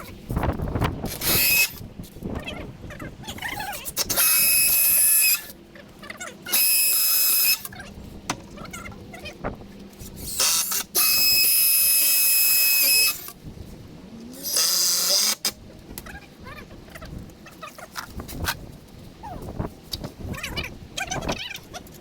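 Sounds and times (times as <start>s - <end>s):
power drill whining: 1.1s - 1.8s, 4.1s - 5.5s, 6.5s - 7.7s, 10.2s - 13.3s, 14.4s - 15.5s.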